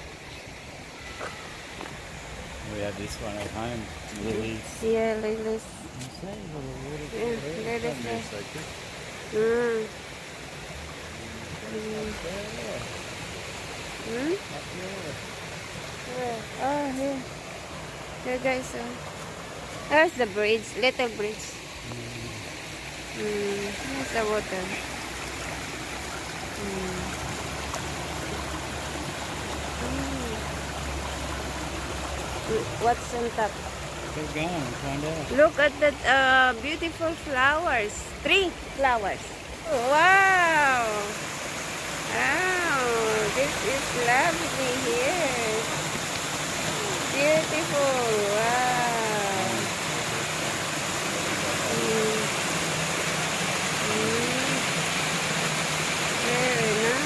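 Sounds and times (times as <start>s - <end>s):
waterfall splashing into pond: 0.0s - 4.9s, 5.5s - 57.0s
faint voices: 2.7s - 8.6s, 21.8s - 22.6s.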